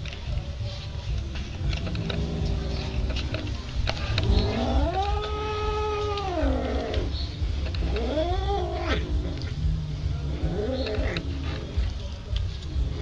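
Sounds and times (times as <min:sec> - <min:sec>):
cat yowling: 0:04.4 - 0:07.1, 0:07.8 - 0:09.2.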